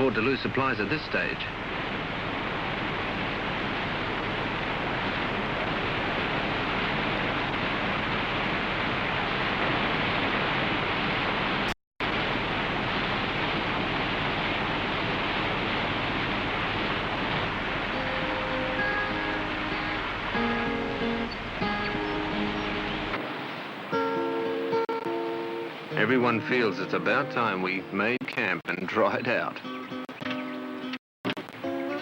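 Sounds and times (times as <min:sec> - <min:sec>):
river rapids rushing: 0:12.0 - 0:28.2
faint music: 0:23.9 - 0:29.6.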